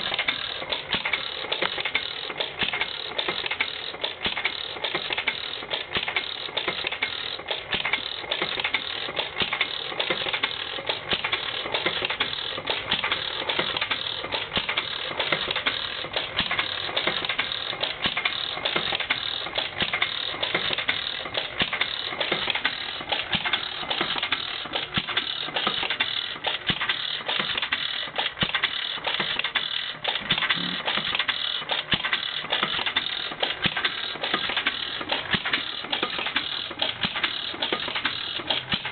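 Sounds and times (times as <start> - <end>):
flywheel engine clicking: 0.0 - 38.9.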